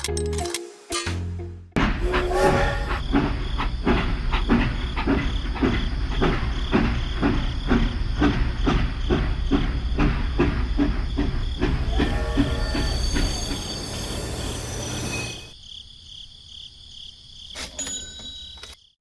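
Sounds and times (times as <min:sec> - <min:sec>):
rail vehicle rumble and clatter: 0:01.8 - 0:15.6.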